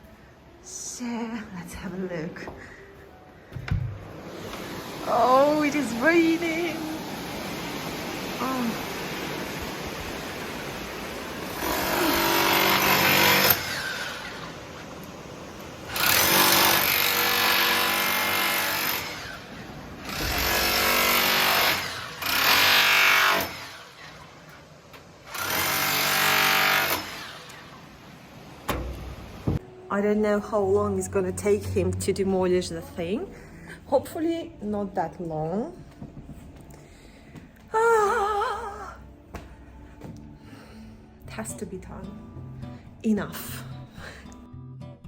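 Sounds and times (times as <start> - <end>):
electric demolition hammer: 11.4 - 14.6, 15.9 - 24.4, 25.2 - 27.8.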